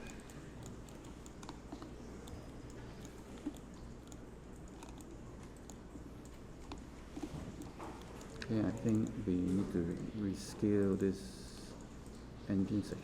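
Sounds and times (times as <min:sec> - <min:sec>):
keyboard and mouse clicks: 0:00.0 - 0:09.7
low steady hum: 0:00.0 - 0:13.0.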